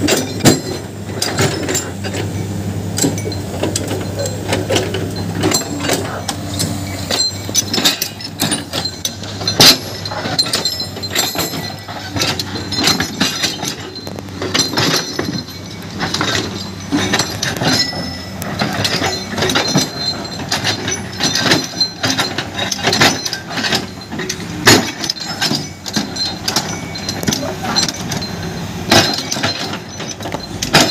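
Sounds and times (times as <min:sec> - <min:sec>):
low engine hum: 0:00.0 - 0:30.9
stones clinking against steel machinery: 0:00.0 - 0:30.9.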